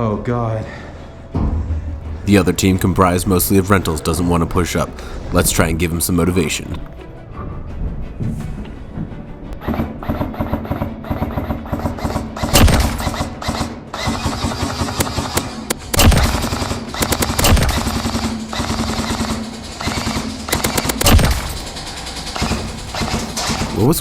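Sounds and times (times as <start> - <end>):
airsoft rifle firing: 12.4 - 23.8.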